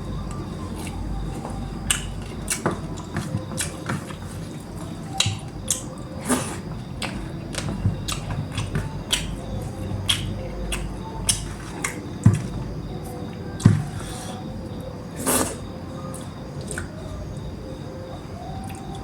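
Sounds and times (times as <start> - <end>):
wet chewing: 0.1 - 17.2
lip smacks and mouth clicks: 10.1 - 12.0.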